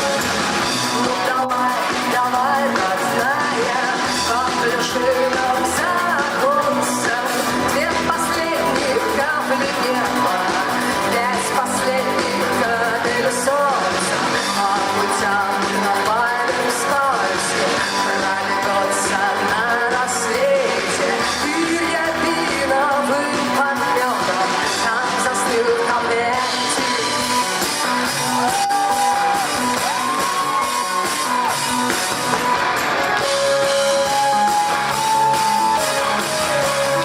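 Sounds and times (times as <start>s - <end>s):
woman singing: 0.0s - 28.6s
rock band playing: 0.0s - 37.0s.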